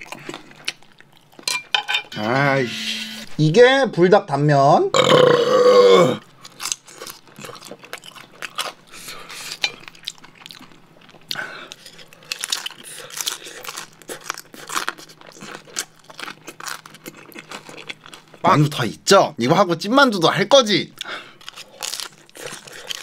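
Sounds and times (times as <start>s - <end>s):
chewing crunchy dumpling: 0.0s - 1.5s, 6.2s - 18.8s, 20.9s - 23.0s.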